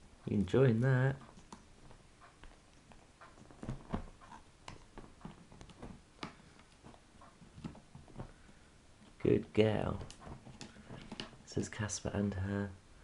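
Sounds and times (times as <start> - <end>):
parrot chewing wood: 10.0 - 11.5.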